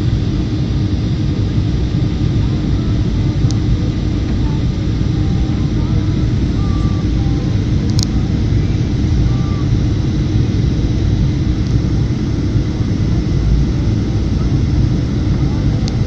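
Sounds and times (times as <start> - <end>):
airliner engines rumbling: 0.0 - 16.0
small click: 7.9 - 8.1.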